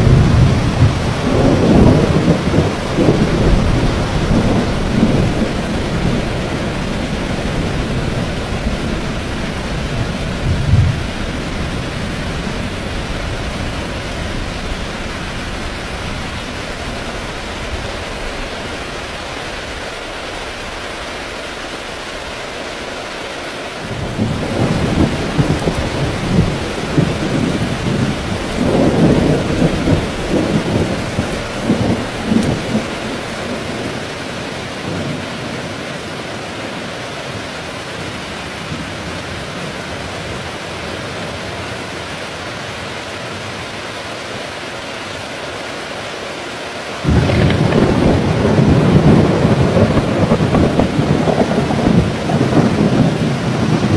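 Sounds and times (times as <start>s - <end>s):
thunder rumbling: 0.0s - 18.9s, 23.8s - 35.5s, 47.0s - 53.9s
heavy rain falling: 0.0s - 53.9s.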